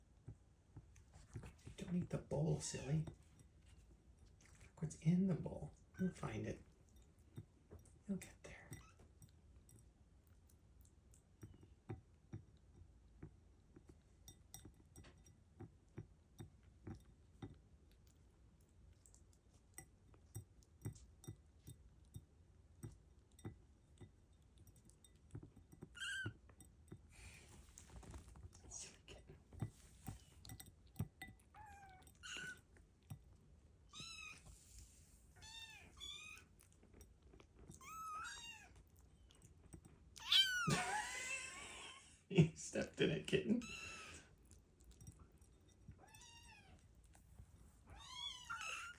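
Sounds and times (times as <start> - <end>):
kittens chewing and clicking: 0.0 - 48.9
kittens mewing: 31.6 - 32.6, 40.2 - 41.9, 43.6 - 44.3, 47.9 - 48.9.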